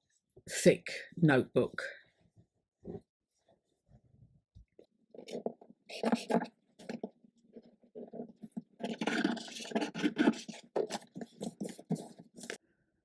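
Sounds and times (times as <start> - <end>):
rubbing and scraping on paper: 5.2 - 12.6.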